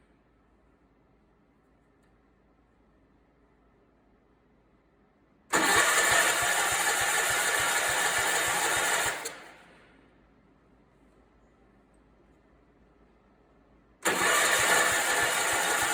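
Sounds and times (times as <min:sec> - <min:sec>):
engine cranked by starter: 0:05.5 - 0:09.8, 0:14.0 - 0:15.9.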